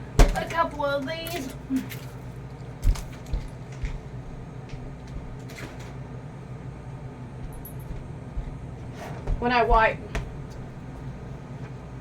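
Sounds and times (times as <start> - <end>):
food items clattering in refrigerator: 0.0 - 6.2
refrigerator hum: 0.0 - 12.0.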